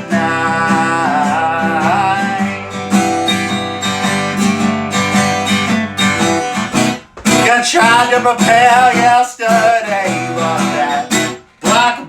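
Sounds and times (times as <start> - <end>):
man singing with vibrato: 0.0 - 3.2, 7.3 - 12.0
strummed acoustic guitar: 0.0 - 12.0.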